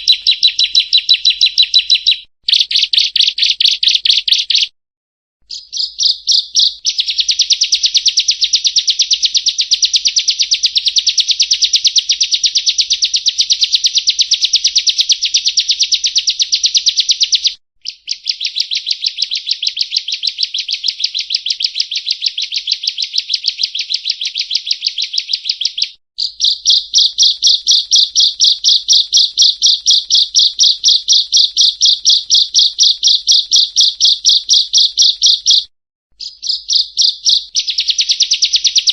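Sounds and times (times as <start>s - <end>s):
bird rapid high trills: 0.0s - 4.7s, 23.6s - 38.9s.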